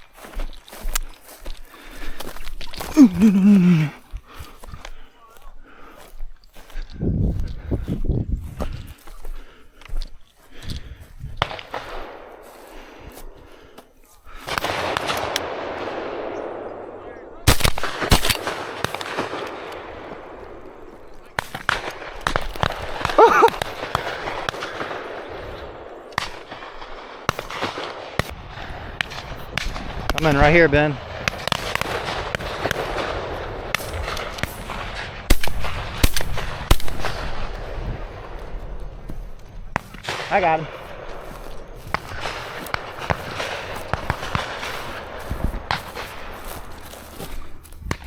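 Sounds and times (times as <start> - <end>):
shotgun shots: 14.4 - 28.4, 29.0 - 38.9, 39.7 - 46.8.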